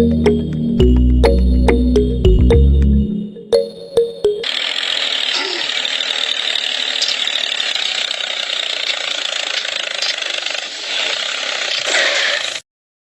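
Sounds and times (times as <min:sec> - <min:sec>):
small motor buzzing whir: 0:04.4 - 0:12.6.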